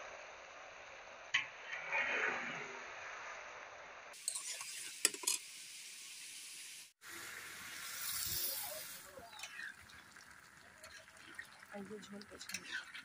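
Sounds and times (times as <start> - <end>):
food sizzling in a pan: 4.1 - 13.0
metal spatula stirring: 4.2 - 5.4, 10.7 - 13.0.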